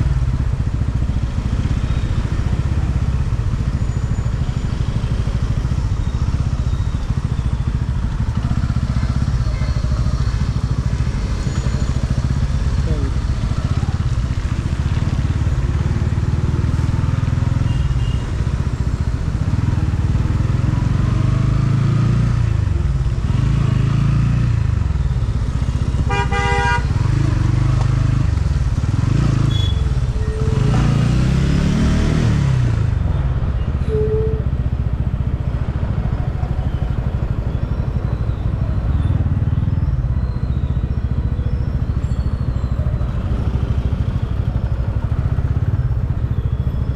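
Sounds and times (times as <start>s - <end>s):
motorcycle engine revving: 0.0s - 33.4s
vehicle horn honk: 17.7s - 18.2s, 26.1s - 27.0s, 29.5s - 30.7s.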